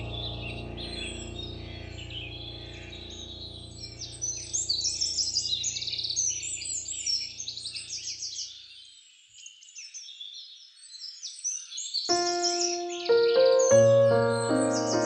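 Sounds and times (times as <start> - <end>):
soft background music drone: 0.0 - 6.4, 12.1 - 15.0
small birds chirping: 0.0 - 15.0.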